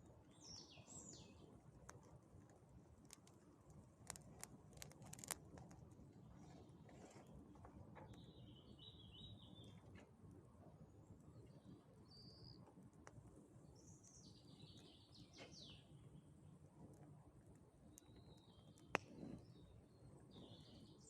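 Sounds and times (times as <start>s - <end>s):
faint birdsong: 0.0s - 2.2s, 4.1s - 21.0s
faint clicks: 1.8s - 8.2s, 16.8s - 19.5s.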